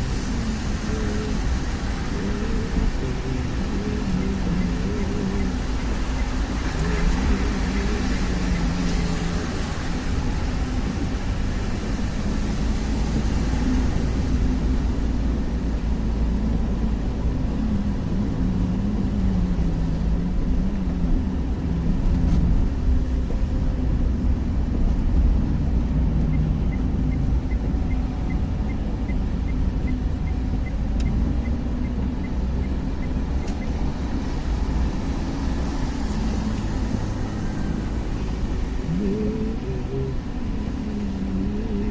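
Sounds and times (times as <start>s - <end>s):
car engine and road noise: 0.0s - 41.9s
light regular ticks: 30.6s - 31.6s.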